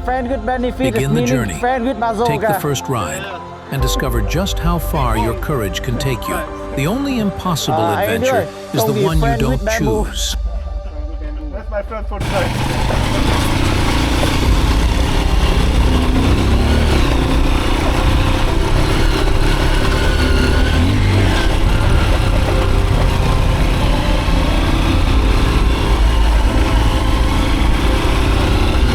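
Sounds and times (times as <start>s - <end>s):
motorcycle engine revving: 12.2s - 28.9s.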